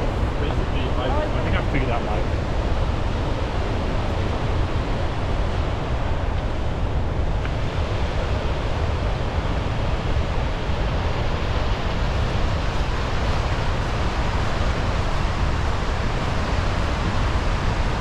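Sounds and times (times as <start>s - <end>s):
waterfall rushing: 0.0s - 6.2s
wind on microphone: 0.0s - 18.0s.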